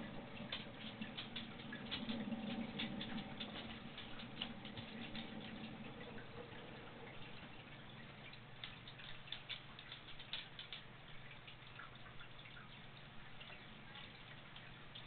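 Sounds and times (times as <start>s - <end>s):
heavy rain falling: 0.0s - 6.4s
raindrops pattering close: 0.0s - 15.0s.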